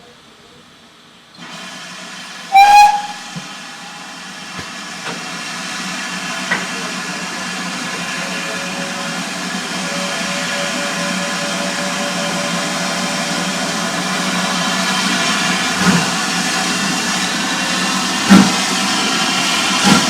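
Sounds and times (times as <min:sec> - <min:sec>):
train hissing and rumbling: 0:00.2 - 0:20.0
steam locomotive whistle: 0:02.5 - 0:04.4, 0:08.0 - 0:15.4.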